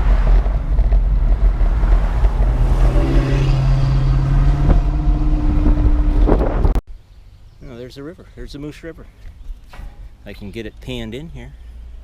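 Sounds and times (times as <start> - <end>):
wind buffeting microphone: 0.0 - 6.8
vehicle engine hum: 0.0 - 7.6.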